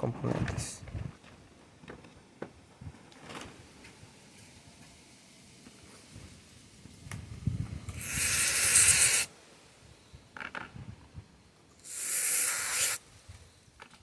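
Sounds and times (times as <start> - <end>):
aerosol spray hissing: 7.9 - 9.3, 11.8 - 13.1.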